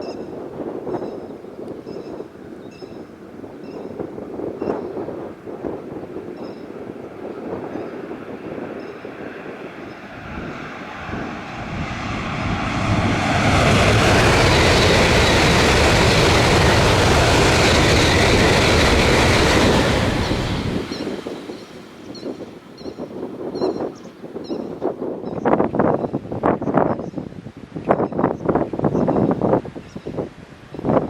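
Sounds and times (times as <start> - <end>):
high-speed train passing: 0.0 - 25.3.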